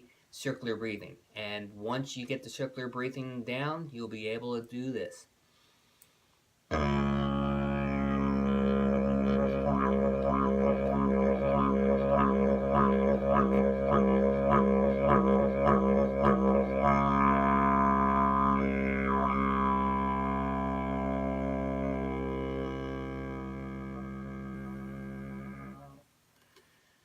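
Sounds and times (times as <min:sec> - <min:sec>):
didgeridoo drone: 0:06.7 - 0:25.9.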